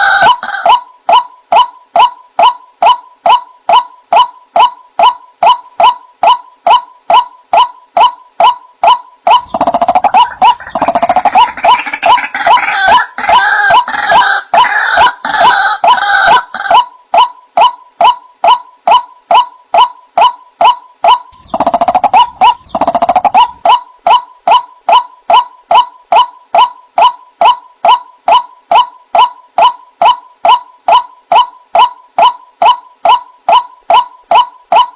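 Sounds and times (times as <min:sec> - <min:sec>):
waterhen calling: 0:09.3 - 0:16.9, 0:21.1 - 0:24.2.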